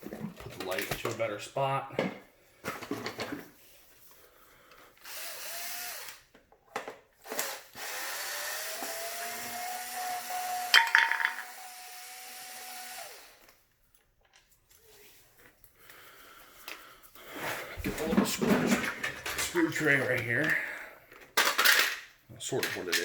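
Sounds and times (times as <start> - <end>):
electric screwdriver whine: 5.0 - 6.3, 7.3 - 10.7, 11.4 - 13.5.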